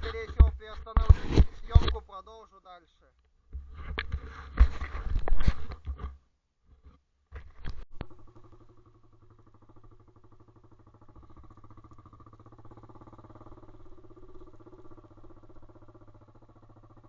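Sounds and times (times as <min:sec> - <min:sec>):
motorbike engine chugging: 0:00.0 - 0:02.0, 0:08.0 - 0:17.0.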